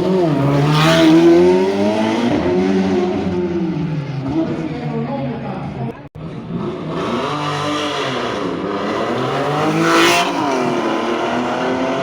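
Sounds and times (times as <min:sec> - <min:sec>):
car engine revving hard: 0:00.0 - 0:03.8, 0:06.3 - 0:12.0.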